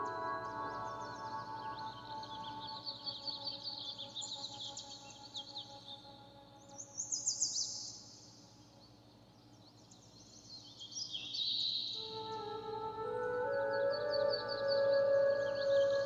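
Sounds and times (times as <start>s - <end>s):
soft musical drone: 0.0s - 8.1s, 12.0s - 16.0s
small birds chirping: 0.0s - 16.0s.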